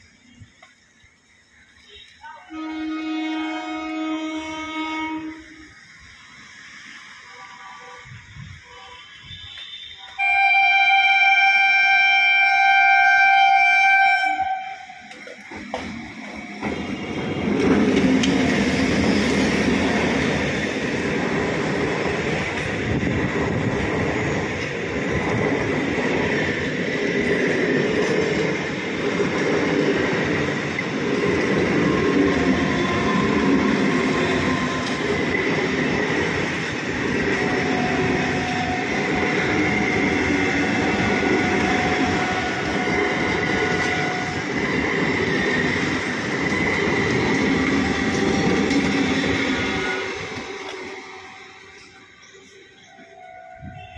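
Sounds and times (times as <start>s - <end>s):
train wheels rumbling on rails: 0.0s - 53.9s.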